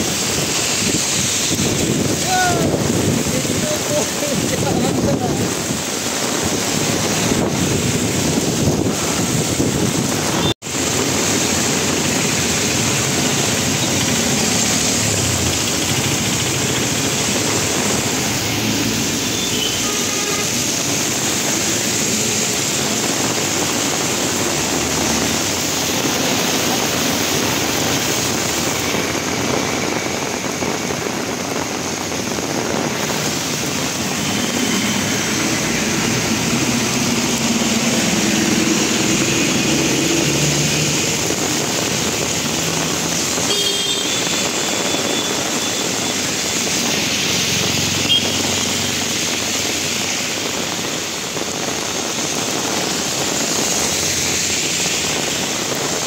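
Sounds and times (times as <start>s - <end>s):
heavy rain pouring: 0.0s - 56.0s
vehicles driving on wet road: 0.0s - 56.0s.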